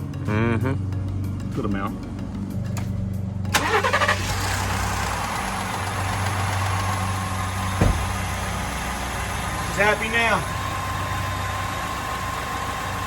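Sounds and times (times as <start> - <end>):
truck engine idling: 0.0 - 13.0
single knock: 7.8 - 8.1.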